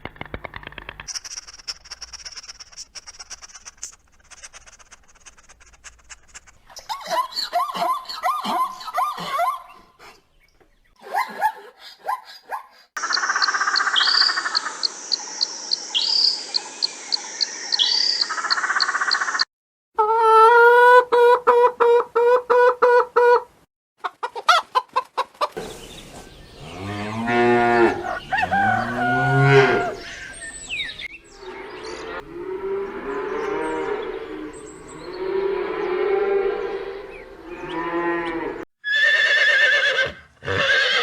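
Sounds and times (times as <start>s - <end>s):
chicken clucking: 20.7s - 26.3s
cow mooing: 26.6s - 30.0s, 31.3s - 38.6s.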